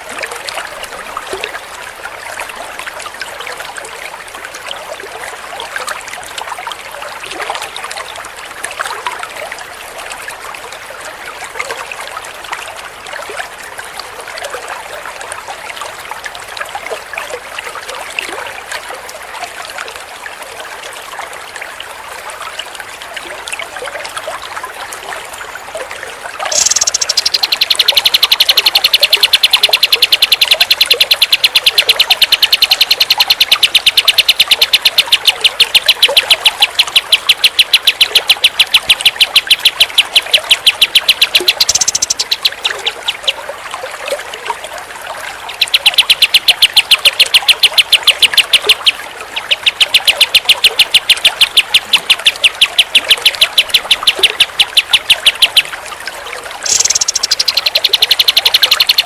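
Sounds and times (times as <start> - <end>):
songbird chirping: 26.4 - 43.4, 45.4 - 55.7, 56.6 - 59.0.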